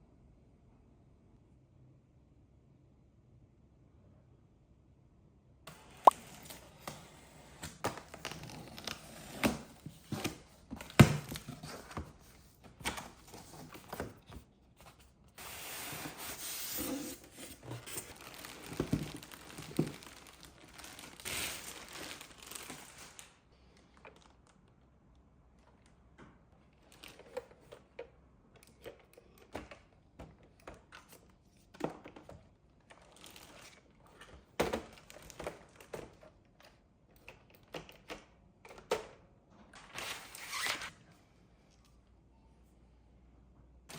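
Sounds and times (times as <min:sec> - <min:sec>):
packaging crinkling and tearing: 0:17.6 - 0:24.7, 0:32.9 - 0:34.0, 0:34.8 - 0:35.9.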